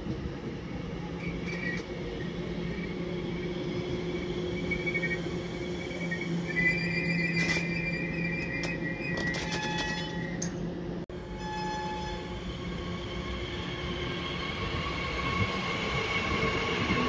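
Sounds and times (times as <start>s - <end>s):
electric train humming: 0.0s - 17.0s
high brake squeal: 4.0s - 10.5s, 11.3s - 12.4s.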